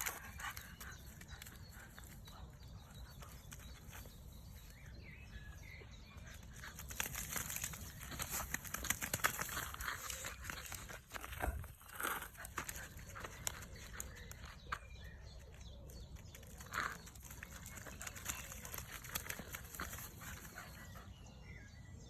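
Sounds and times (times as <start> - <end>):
dog splashing in mud: 6.7 - 11.1, 16.9 - 20.6.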